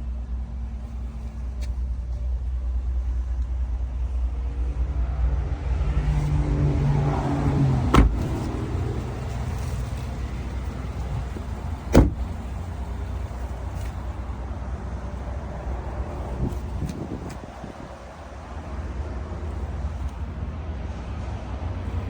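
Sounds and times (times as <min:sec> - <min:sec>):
pickup truck engine running: 0:06.7 - 0:20.4
sharp thumps: 0:07.9 - 0:08.6, 0:11.9 - 0:12.5.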